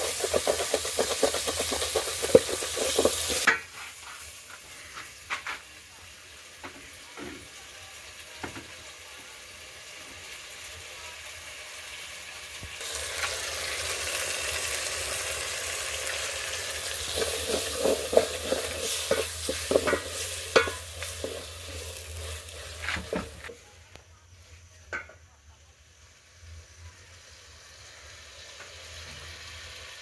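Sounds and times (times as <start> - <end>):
spoon scraping and knocking pot: 0.0 - 4.3, 16.8 - 23.5
food sizzling in a pot: 0.0 - 23.7, 24.3 - 30.0.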